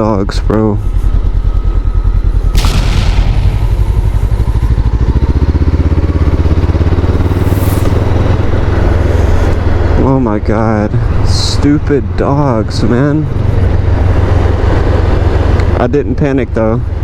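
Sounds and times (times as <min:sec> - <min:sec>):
motorcycle engine pulsing: 0:00.4 - 0:10.0
rushes of noise: 0:02.5 - 0:09.9.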